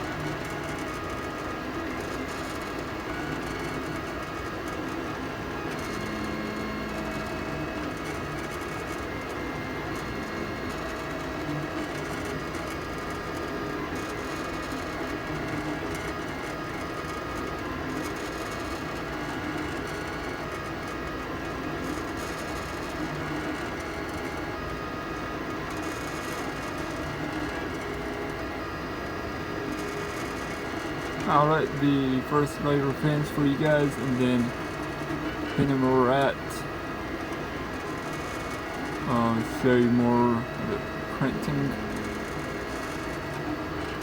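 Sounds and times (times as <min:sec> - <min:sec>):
fan humming: 0:29.6 - 0:42.8.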